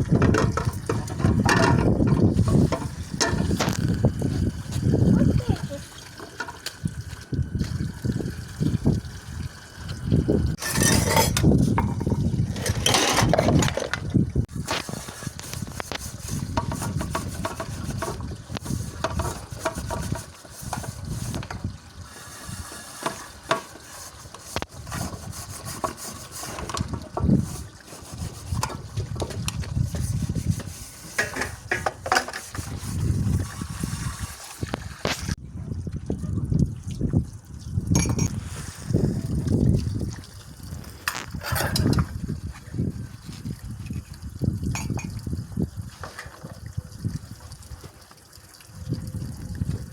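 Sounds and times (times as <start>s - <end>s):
dishes clinking: 10.6s - 13.8s, 38.0s - 38.4s, 41.4s - 42.1s, 44.8s - 45.2s
water splashing: 32.4s - 35.4s.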